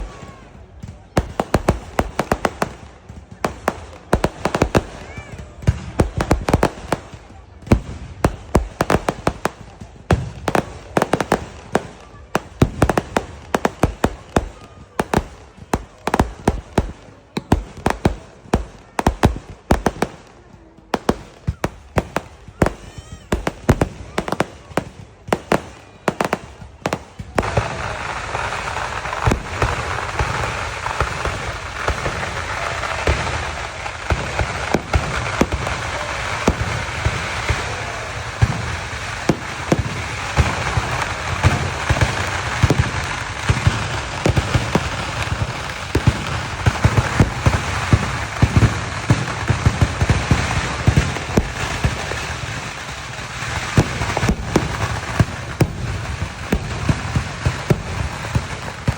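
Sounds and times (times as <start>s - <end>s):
fireworks bangs and crackling: 0.0s - 58.9s.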